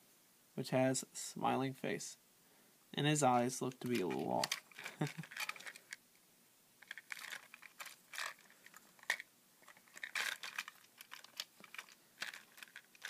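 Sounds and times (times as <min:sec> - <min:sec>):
plastic toy train clicks and rustles: 0:03.7 - 0:06.0, 0:06.8 - 0:13.0.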